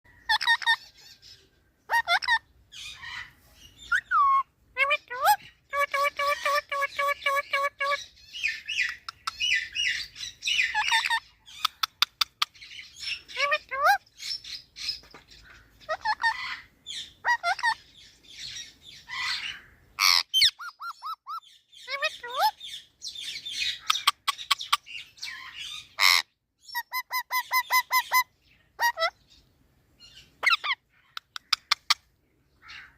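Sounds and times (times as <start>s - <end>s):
parrot chattering and whistling: 0.2s - 1.0s, 1.9s - 3.1s, 3.8s - 14.0s, 15.9s - 17.8s, 20.0s - 22.6s, 23.6s - 29.2s.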